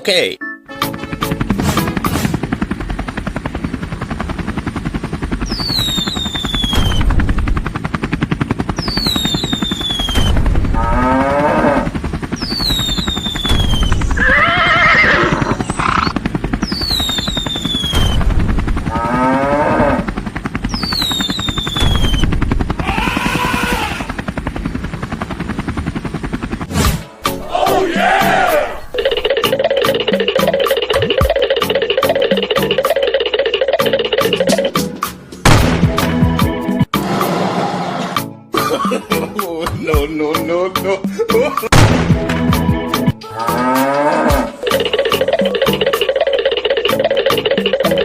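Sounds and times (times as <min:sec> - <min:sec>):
fast rattling pulse: 0:00.8 - 0:26.9, 0:28.9 - 0:37.0, 0:44.4 - 0:48.0
high falling whistle: 0:05.5 - 0:07.1, 0:08.8 - 0:10.4, 0:12.5 - 0:14.3, 0:16.7 - 0:18.2, 0:20.8 - 0:22.3
cow-like animal calls: 0:22.8 - 0:24.1.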